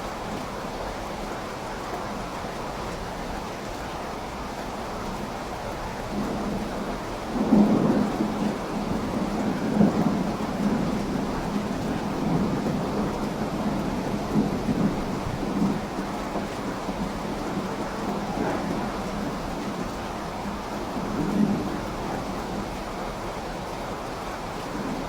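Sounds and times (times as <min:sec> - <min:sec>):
steady rain: 0:00.0 - 0:25.0
rolling thunder: 0:05.8 - 0:23.3.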